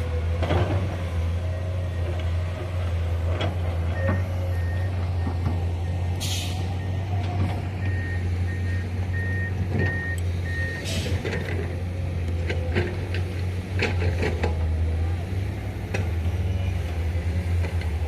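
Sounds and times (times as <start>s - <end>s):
truck engine hum: 0.0s - 18.0s
reversing alarm beeping: 3.9s - 11.6s
short sharp air hisses: 6.2s - 6.6s.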